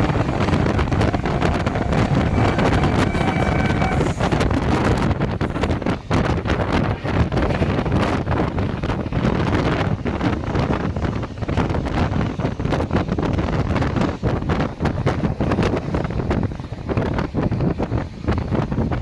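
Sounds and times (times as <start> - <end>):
train rumbling past: 0.0 - 11.3
train clatter: 0.0 - 19.0
wind buffeting microphone: 0.0 - 19.0.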